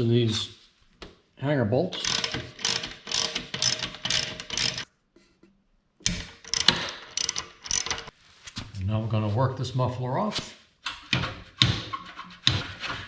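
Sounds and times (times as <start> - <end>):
socket ratchet clicking: 2.0 - 4.9, 6.1 - 8.1.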